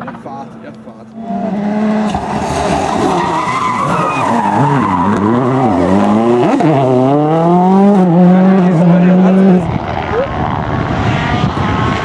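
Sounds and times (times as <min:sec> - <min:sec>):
rally car engine revving: 0:00.0 - 0:12.0
steady rushing noise: 0:05.7 - 0:12.0.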